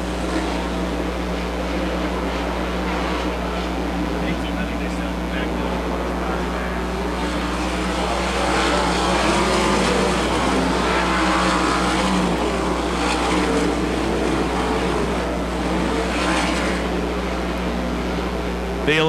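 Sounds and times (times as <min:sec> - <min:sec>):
racing car engines at full throttle: 0:00.0 - 0:19.0.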